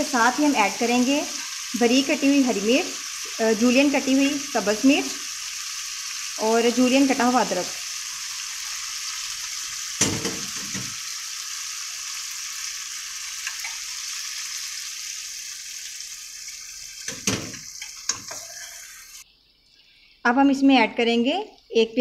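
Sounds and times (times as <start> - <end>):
food sizzling in a wok: 0.0 - 19.3
knock against the pan: 10.0 - 11.0, 17.1 - 18.3.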